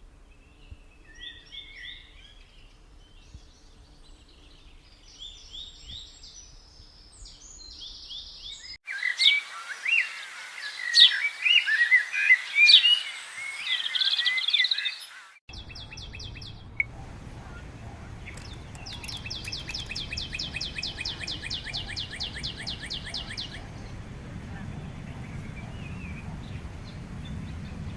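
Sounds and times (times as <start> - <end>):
birds singing whistled phrases: 7.2 - 27.9
low steady background: 15.5 - 27.9.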